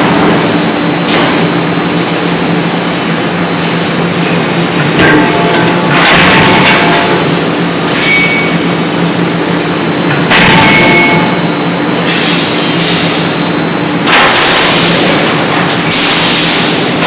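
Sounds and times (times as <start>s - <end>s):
forging machinery hum: 0.0s - 17.0s.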